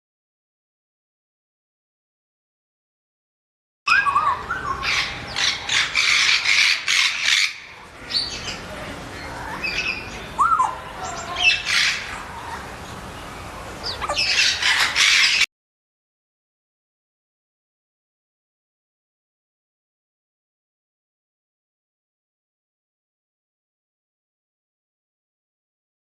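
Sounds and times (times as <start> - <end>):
birds squawking and chirping: 3.9 - 15.5.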